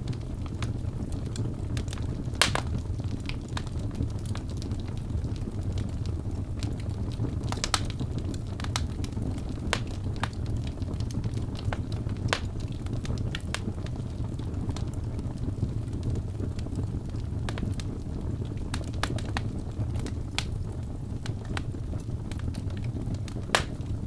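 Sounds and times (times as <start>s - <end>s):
fire crackling and popping: 0.0s - 24.0s
rumble of flames: 0.0s - 24.0s.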